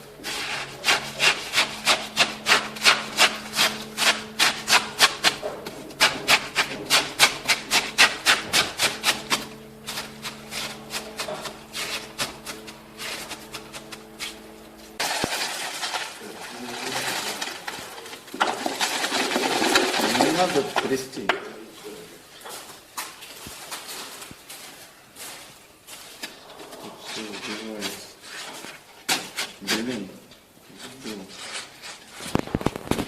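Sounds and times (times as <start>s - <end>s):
hand tool scraping hard material: 0.0s - 21.0s, 26.0s - 32.9s
steady noise: 0.0s - 22.3s
steady hum: 0.0s - 29.6s.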